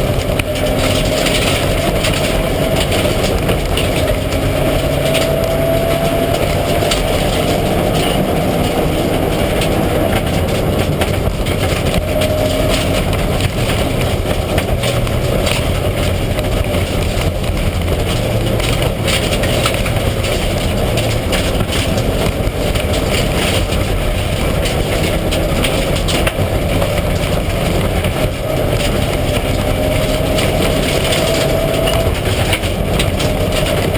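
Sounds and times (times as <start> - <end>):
rally car engine running hard: 0.0 - 33.9
sharp clicks and knocks: 0.0 - 33.9.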